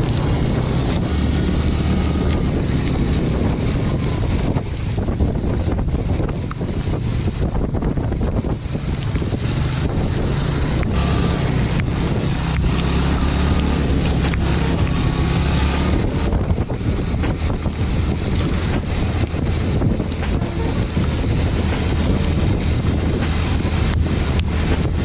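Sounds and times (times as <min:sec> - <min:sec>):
boat engine running: 0:00.0 - 0:25.0
wind buffeting microphone: 0:00.0 - 0:25.0.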